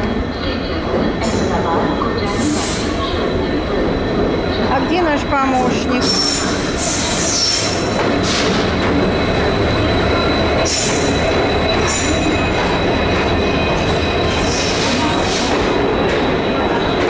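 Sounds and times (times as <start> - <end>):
train coaches rumbling: 0.0 - 17.0
high-pitched wheel squeals: 6.0 - 8.0, 9.3 - 15.5.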